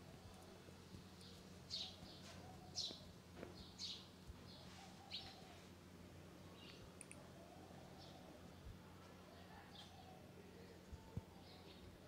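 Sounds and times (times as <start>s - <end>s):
low electrical hum: 0.0s - 12.0s
bird chirping: 1.2s - 5.5s.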